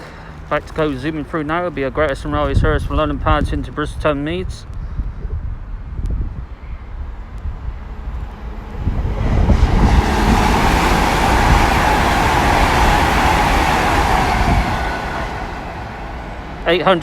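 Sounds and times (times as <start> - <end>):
train passing at speed: 5.8 - 17.0.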